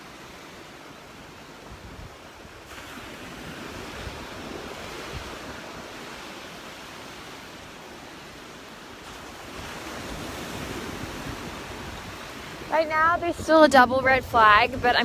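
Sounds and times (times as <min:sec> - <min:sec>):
surf washing onto beach: 0:00.0 - 0:15.0
wind buffeting microphone: 0:01.5 - 0:06.8, 0:09.0 - 0:15.0.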